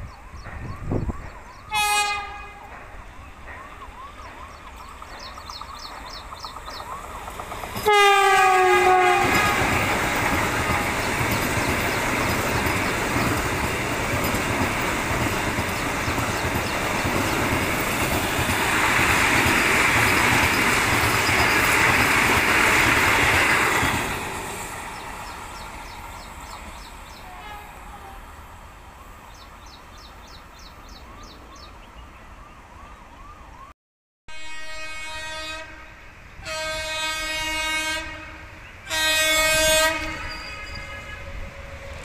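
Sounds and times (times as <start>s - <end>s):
train running past: 0.0s - 33.7s, 34.4s - 42.0s
train horn blast: 1.6s - 2.8s, 7.8s - 11.4s, 27.2s - 28.4s, 34.3s - 42.0s.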